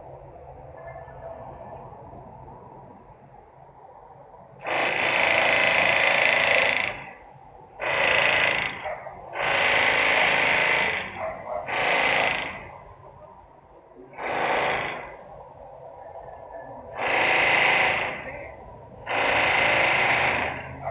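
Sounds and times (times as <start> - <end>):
steady machine background noise: 0.0 - 20.9
harsh industrial machine blasts: 4.6 - 7.2, 7.8 - 12.7, 14.2 - 15.3, 16.9 - 20.9.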